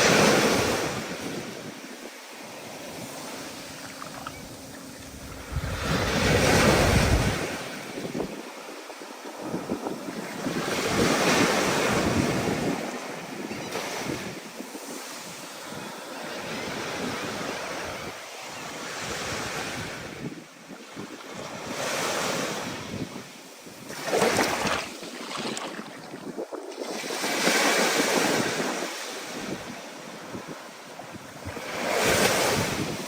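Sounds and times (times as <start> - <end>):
ocean surf breaking: 2.3 - 8.6
wind gusting over microphone: 2.8 - 15.1, 22.6 - 33.0.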